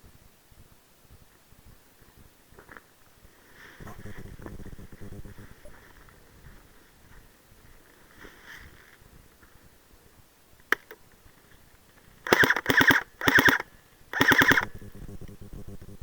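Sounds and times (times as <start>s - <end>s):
sharp click: 10.7s - 11.0s, 12.2s - 15.9s
airsoft gun full-auto bursts: 12.2s - 16.0s.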